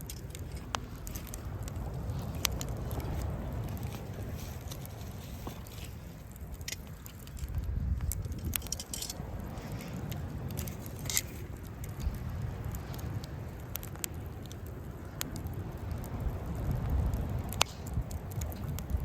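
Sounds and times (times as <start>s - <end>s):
campfire crackling: 0.0s - 19.0s
sharp pops of fire: 0.0s - 19.0s
steady low rumble: 0.0s - 19.0s.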